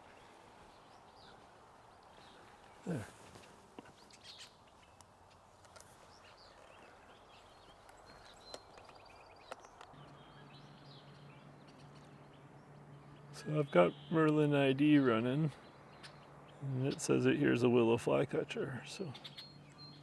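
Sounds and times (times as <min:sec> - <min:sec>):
faint bird chirps: 0:06.0 - 0:17.5, 0:19.0 - 0:20.0
low steady hum: 0:09.9 - 0:20.0.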